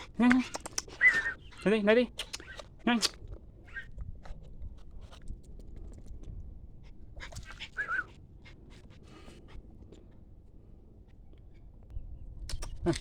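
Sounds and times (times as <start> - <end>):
puppy whimpering: 0.0 - 2.7, 7.3 - 8.1.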